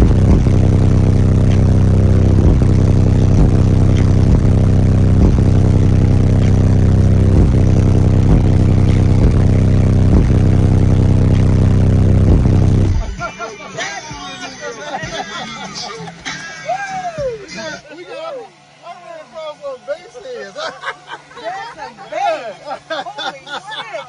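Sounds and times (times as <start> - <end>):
truck diesel engine idling: 0.0 - 13.1.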